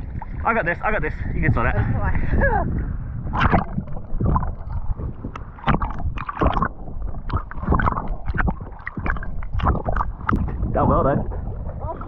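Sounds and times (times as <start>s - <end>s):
low rumble of water buffeting: 0.0s - 12.0s
seawater sloshing and splashing: 3.3s - 12.0s.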